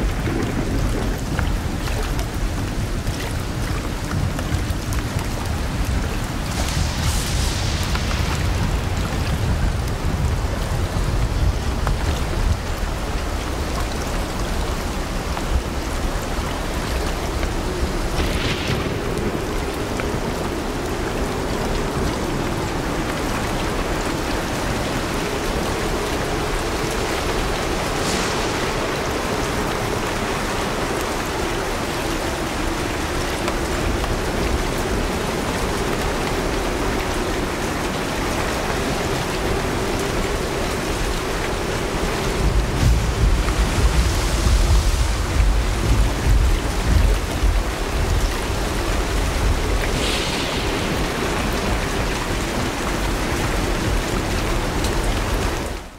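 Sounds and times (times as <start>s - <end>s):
low rumble: 0.0s - 13.7s, 40.6s - 55.4s
heavy rain falling: 0.0s - 55.9s.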